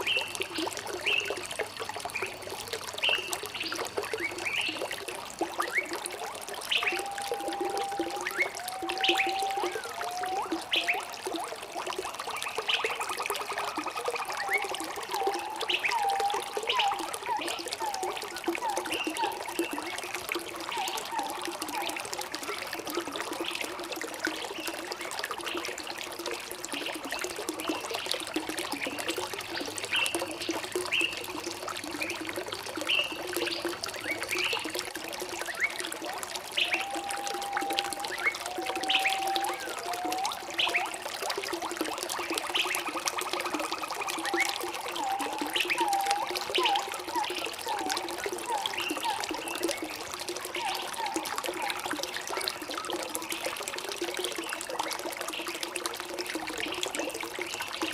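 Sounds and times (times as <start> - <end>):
running water trickling: 0.0 - 57.9
birds singing and chirping: 6.7 - 11.1, 14.2 - 20.0, 20.7 - 22.6, 36.6 - 41.0, 44.0 - 52.0.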